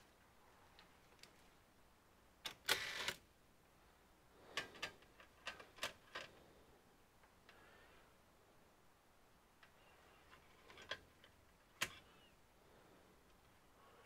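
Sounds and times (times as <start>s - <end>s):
tools and plastic parts clicking: 9.6s - 12.1s.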